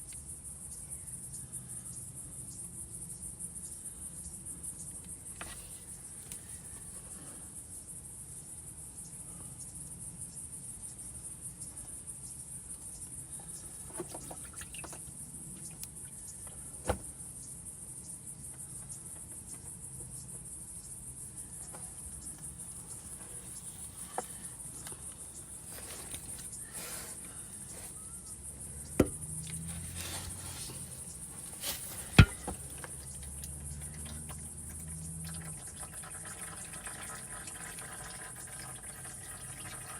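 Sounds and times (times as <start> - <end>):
sharp knocks: 29.0 - 29.2, 32.2 - 32.8.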